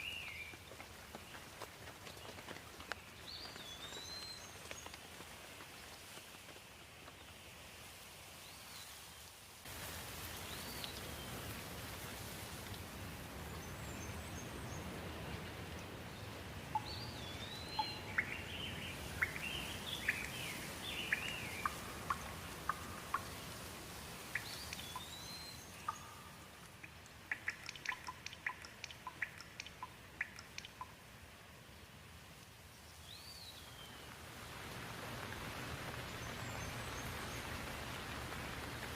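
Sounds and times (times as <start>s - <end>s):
steady rain: 0.0s - 38.9s
drops ticking: 25.8s - 31.0s.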